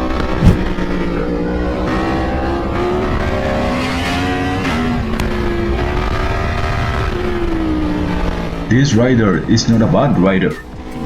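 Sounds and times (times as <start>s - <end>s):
sharp thump: 0.4s - 0.6s.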